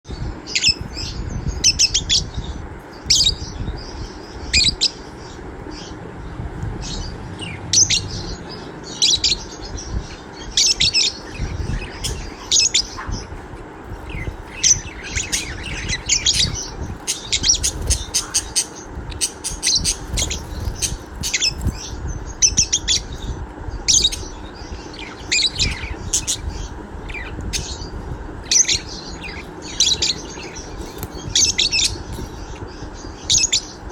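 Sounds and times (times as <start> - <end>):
low background rumble: 0.1 - 33.9
budgerigar chirping and warbling: 6.9 - 23.1, 23.9 - 33.8.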